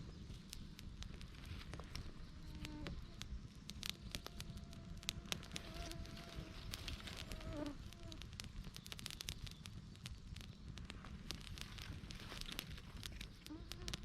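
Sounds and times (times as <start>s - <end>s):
campfire crackling and popping: 0.0s - 14.0s
flying insect buzzing: 4.2s - 8.2s, 13.5s - 14.0s.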